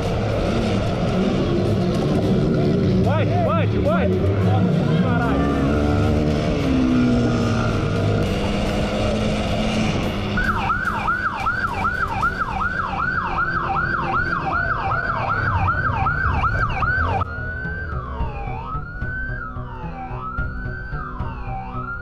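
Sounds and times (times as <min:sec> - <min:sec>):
engine and road noise: 0:00.0 - 0:22.0
police siren yelping and wailing: 0:10.2 - 0:22.0.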